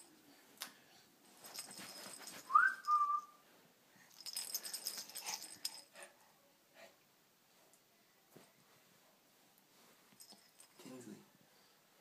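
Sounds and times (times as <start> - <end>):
rustling and rattling: 1.2 - 3.0, 4.1 - 6.1, 9.8 - 11.1
two-part whistle: 2.5 - 3.4.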